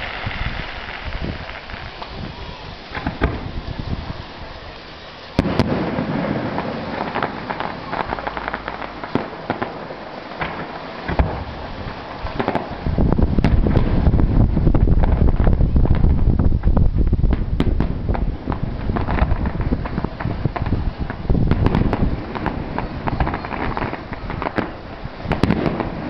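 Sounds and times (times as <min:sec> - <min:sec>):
fireworks bangs and crackles: 0:00.0 - 0:26.0
heavy low rumble: 0:12.8 - 0:23.2.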